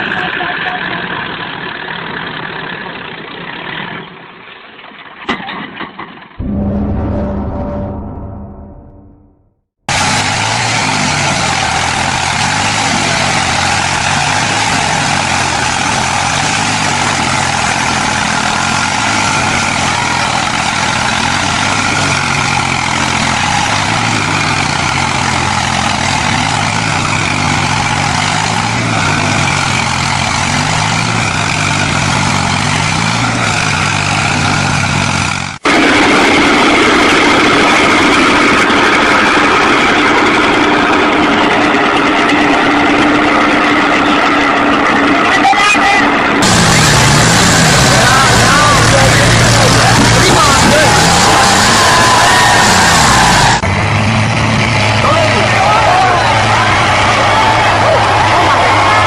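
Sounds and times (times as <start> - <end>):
engine humming steadily: 0.0 - 5.6, 9.9 - 59.0
tractor engine running: 0.0 - 59.0.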